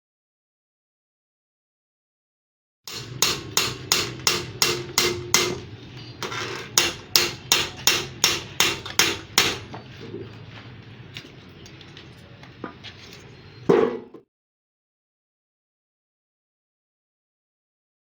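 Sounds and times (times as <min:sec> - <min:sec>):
hammer blows: 0:02.9 - 0:09.8.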